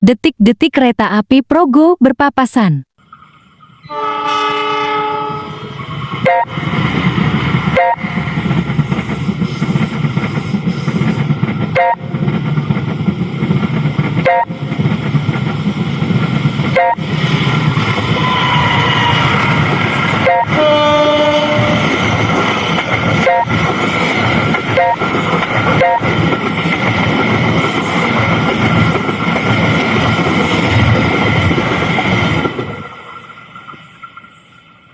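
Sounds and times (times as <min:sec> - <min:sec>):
passenger train rumbling past: 0:03.1 - 0:34.9
wheels rattling over rails: 0:05.6 - 0:34.9
high wheel squeal: 0:16.8 - 0:22.3.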